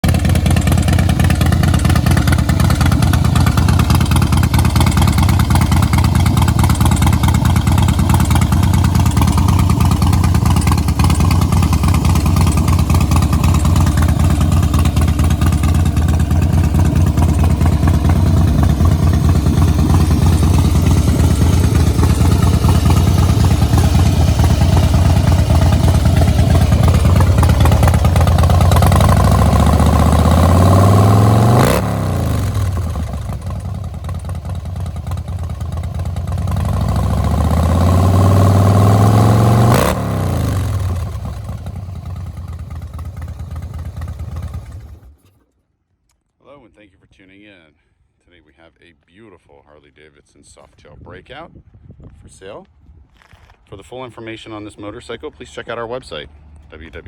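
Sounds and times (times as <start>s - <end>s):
motorcycle engine idling: 0.0s - 45.2s.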